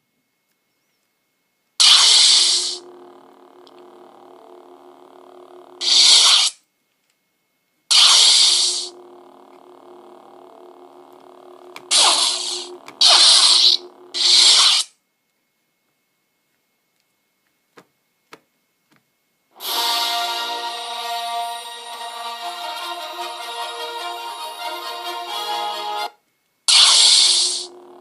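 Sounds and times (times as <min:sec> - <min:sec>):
low electric hum: 0:00.0 - 0:26.7, 0:27.4 - 0:28.0
lightsaber crash bursts: 0:01.8 - 0:02.8, 0:05.8 - 0:06.6, 0:07.9 - 0:08.9, 0:11.9 - 0:14.9, 0:26.7 - 0:27.7.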